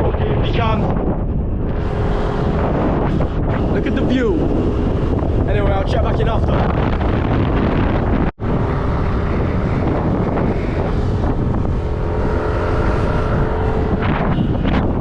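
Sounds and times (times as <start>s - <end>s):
wind buffeting microphone: 0.0s - 15.0s
motorbike engine running: 6.7s - 15.0s.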